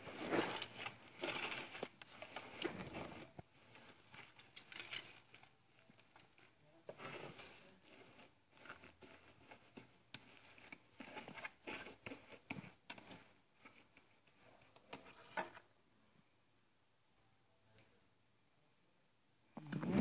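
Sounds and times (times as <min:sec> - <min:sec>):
slime clicks and rustles: 0:00.0 - 0:15.6.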